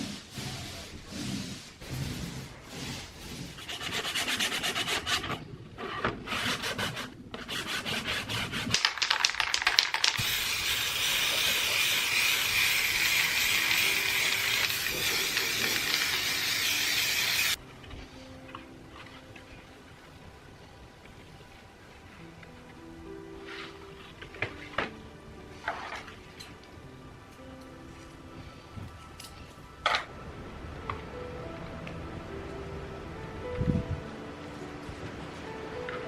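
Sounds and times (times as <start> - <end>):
sanding strokes: 0.0 - 8.9, 10.2 - 17.6.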